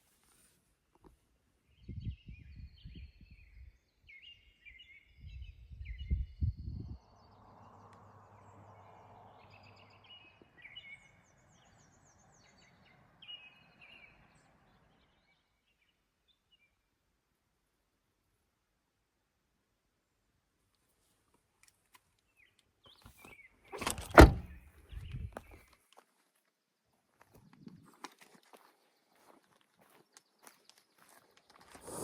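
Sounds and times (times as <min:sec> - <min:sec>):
songbirds singing: 0:01.7 - 0:16.8, 0:22.2 - 0:25.7
low rumbling bumps: 0:23.8 - 0:25.2.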